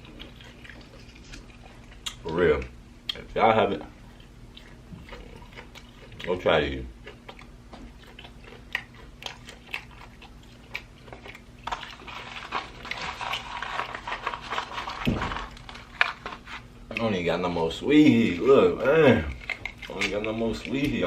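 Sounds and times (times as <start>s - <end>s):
person chewing crunchy food: 0.0s - 21.0s.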